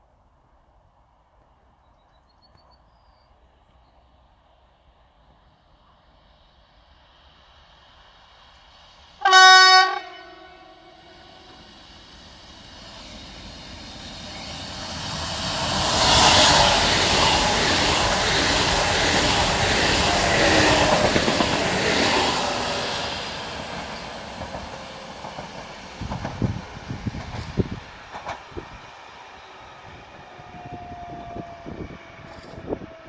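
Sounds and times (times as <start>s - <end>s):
train rushing past: 4.0s - 33.0s.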